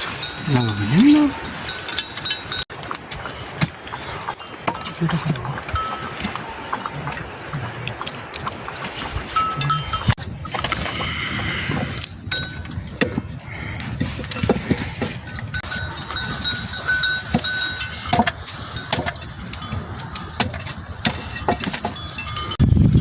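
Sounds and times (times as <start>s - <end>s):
sheep bells clanking: 0.0s - 7.2s, 9.3s - 10.2s, 12.2s - 13.0s, 15.2s - 22.6s.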